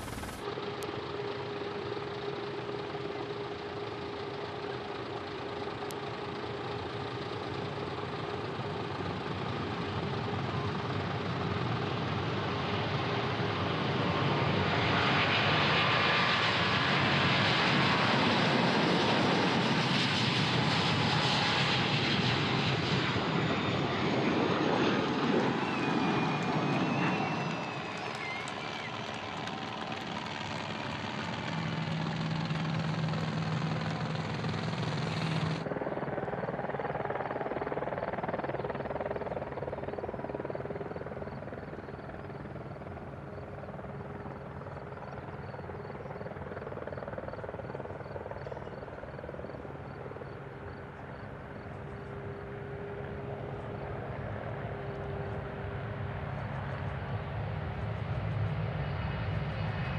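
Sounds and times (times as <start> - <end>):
aircraft engine rush: 0.0 - 59.9
faint steady tones: 16.2 - 59.8.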